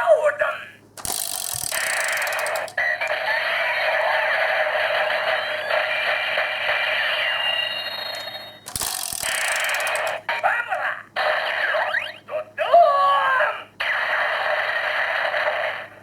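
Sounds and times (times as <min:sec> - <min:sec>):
tinny electronic toy sound effect: 0:01.0 - 0:12.4.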